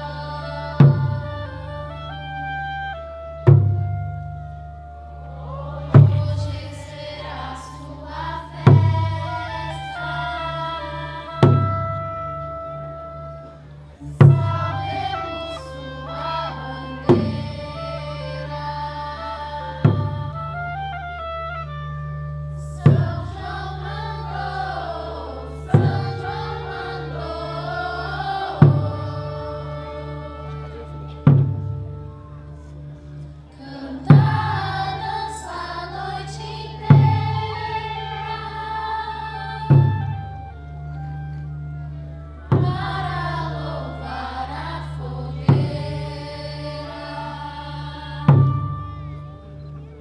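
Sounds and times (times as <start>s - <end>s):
group of voices singing: 0.0s - 2.3s, 5.2s - 12.4s, 14.0s - 21.0s, 22.6s - 31.6s, 33.5s - 40.5s, 42.4s - 49.5s
drum beats: 8.1s - 10.2s, 14.1s - 17.7s, 22.8s - 30.0s, 34.0s - 38.8s, 39.5s - 40.2s, 42.5s - 46.3s.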